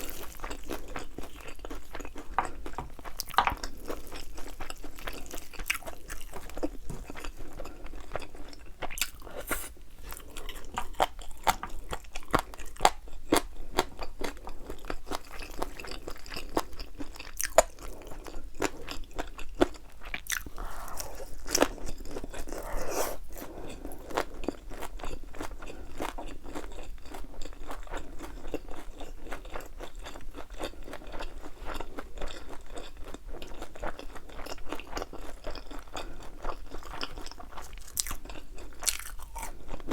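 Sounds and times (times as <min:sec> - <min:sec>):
crunching and chewing fried chicken: 0:00.0 - 0:39.9.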